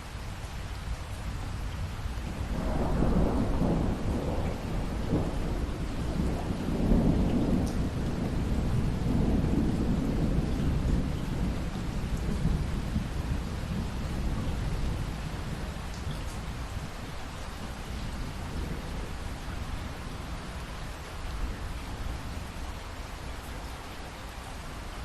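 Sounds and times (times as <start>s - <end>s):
steady rain: 0.0s - 25.0s
rolling thunder: 2.3s - 17.0s.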